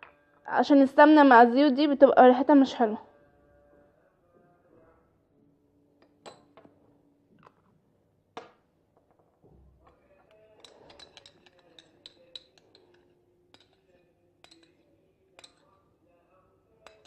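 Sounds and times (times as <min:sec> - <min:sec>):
glass containers clinking: 0:09.8 - 0:15.8.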